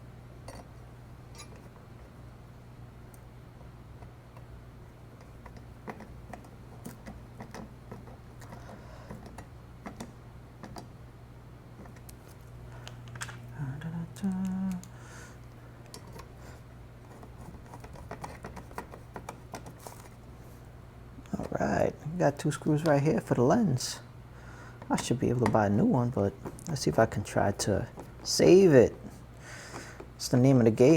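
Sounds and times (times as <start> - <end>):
steady low hum: 0.0 - 30.9
person humming: 13.5 - 15.0.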